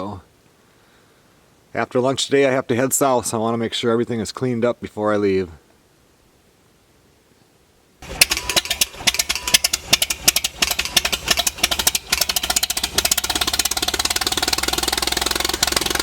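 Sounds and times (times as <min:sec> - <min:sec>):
tractor engine starting and idling: 0:08.0 - 0:16.0.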